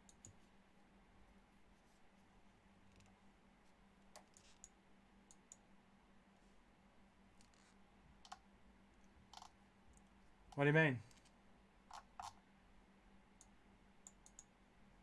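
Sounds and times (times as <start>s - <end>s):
computer mouse clicks: 0.0s - 0.4s, 4.2s - 5.6s, 7.4s - 8.4s, 9.3s - 11.3s, 11.9s - 12.4s, 13.4s - 14.5s.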